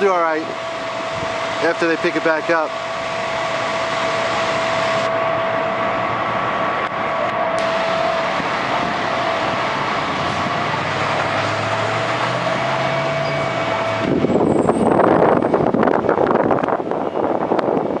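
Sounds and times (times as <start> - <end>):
faint high whine: 0.0 - 10.7
engine running: 0.0 - 18.0
wind buffeting microphone: 0.8 - 1.6, 6.9 - 18.0.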